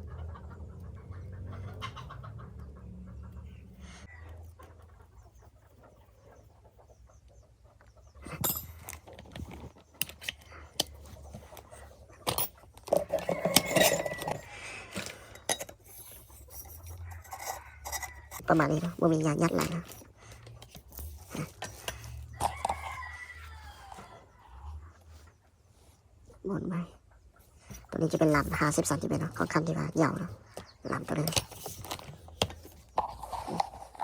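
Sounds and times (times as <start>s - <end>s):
metal parts clicking and knocking: 8.2s - 18.8s, 30.6s - 34.0s
metal scraping rub: 12.9s - 20.0s.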